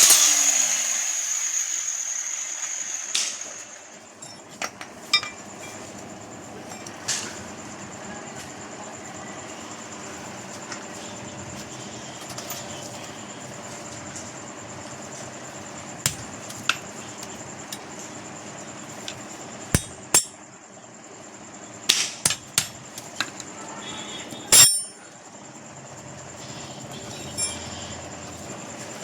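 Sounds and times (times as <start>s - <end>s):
hammer clanking on metal: 19.8s - 20.4s, 22.2s - 22.8s, 24.5s - 25.0s.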